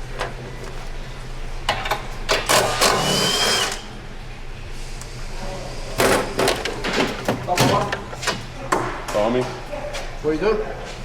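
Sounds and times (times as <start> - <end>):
power tool running: 2.4 - 3.9.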